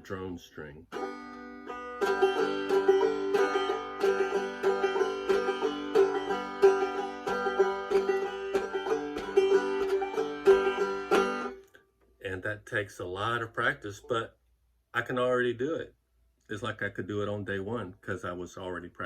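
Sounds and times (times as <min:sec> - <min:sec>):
banjo picking and strumming: 0:00.0 - 0:11.7.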